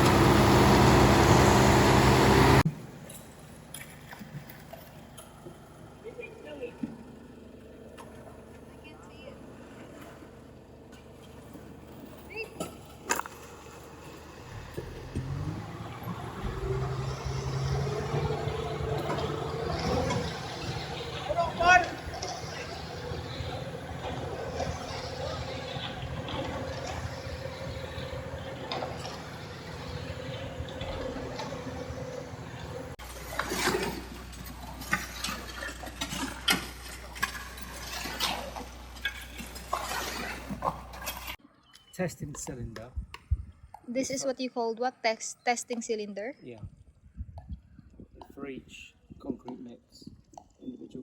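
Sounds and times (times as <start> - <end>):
truck diesel engine running: 0.0 - 3.7, 4.9 - 41.4.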